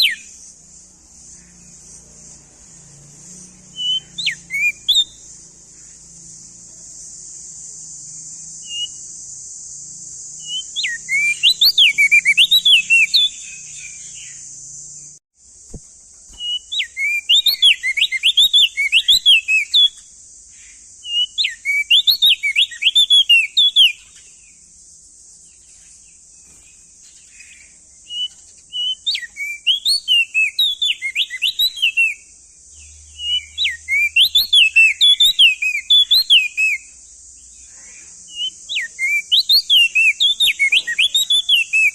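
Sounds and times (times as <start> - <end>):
bird singing sharp notes: 0.0 - 0.6, 1.4 - 6.7, 10.1 - 24.5, 38.3 - 41.9
steady high hiss: 0.0 - 40.8.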